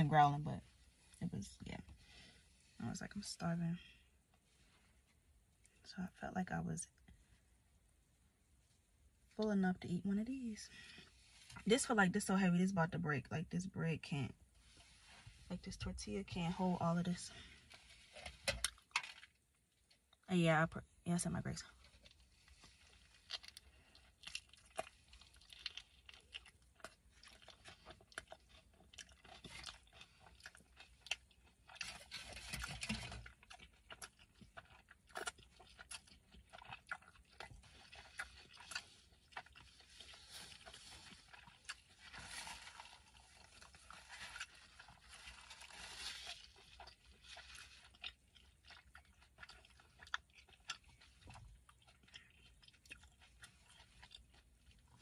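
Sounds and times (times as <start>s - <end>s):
chewing with wet clicks: 21.9s - 55.0s.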